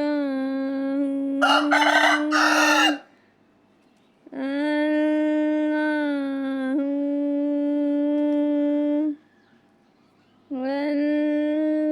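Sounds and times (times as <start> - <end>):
parrot call: 1.4 - 3.0.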